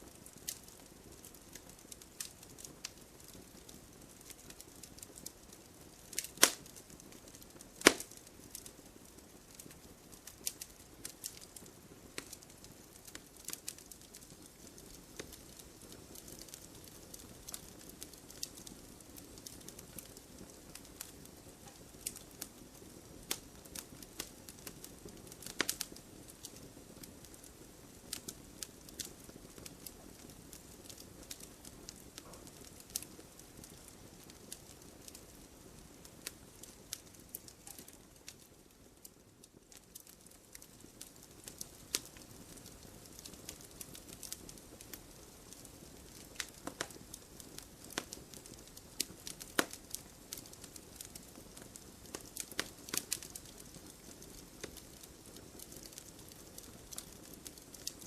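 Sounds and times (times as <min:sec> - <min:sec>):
fire crackles and pops: 0:00.0 - 0:58.0.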